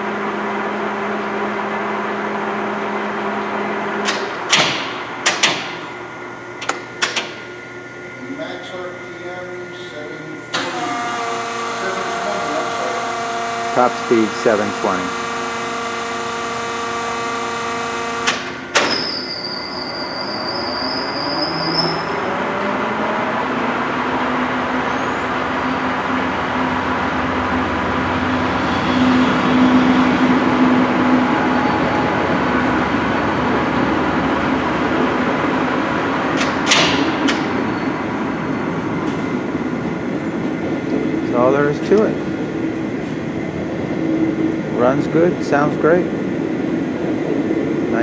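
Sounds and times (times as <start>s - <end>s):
lathe gear whine: 0.0s - 48.0s
lathe clunk: 4.1s - 6.0s, 6.6s - 7.5s, 10.5s - 19.2s, 36.3s - 37.7s
thin high whine: 8.2s - 23.0s.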